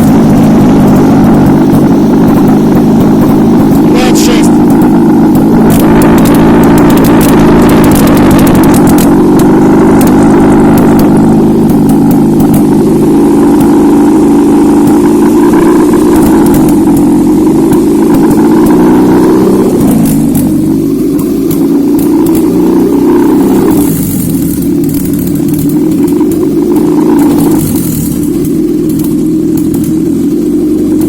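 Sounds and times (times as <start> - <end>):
car engine running: 0.0 - 31.0.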